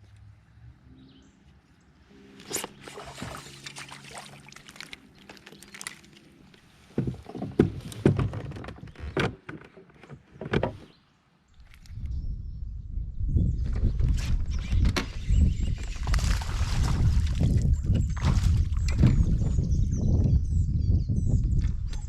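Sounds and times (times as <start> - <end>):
knocks and rattles on kayak: 6.8 - 10.9, 13.7 - 19.8.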